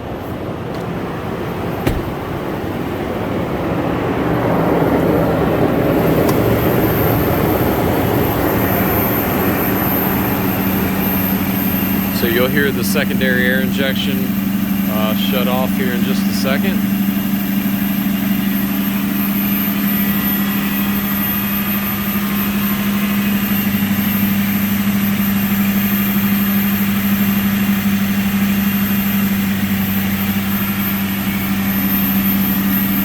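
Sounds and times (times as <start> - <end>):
car engine idling: 0.1 - 3.4, 5.4 - 33.0
air pump humming: 1.7 - 2.6, 6.1 - 21.1.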